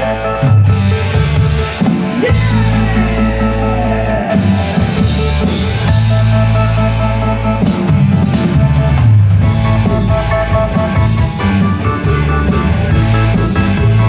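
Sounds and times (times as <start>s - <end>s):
rock band playing: 0.0s - 14.0s
steady drumming: 1.4s - 7.0s.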